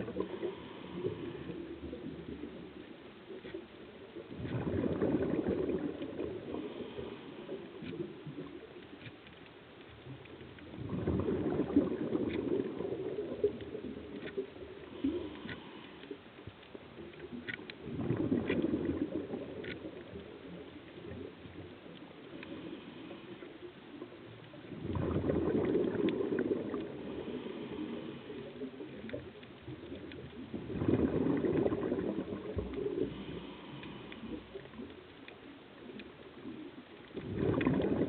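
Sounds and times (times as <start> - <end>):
faint clicks: 0.0 - 38.0
regulator exhalation bubbles: 24.8 - 27.8, 30.6 - 34.4, 37.2 - 38.0.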